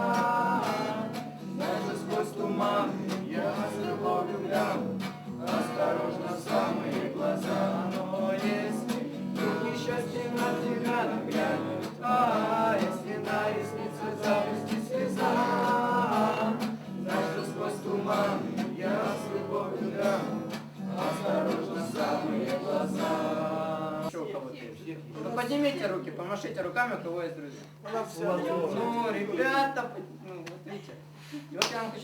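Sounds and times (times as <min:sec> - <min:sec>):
guitar accompaniment: 0:00.0 - 0:24.1
person singing: 0:00.0 - 0:24.1.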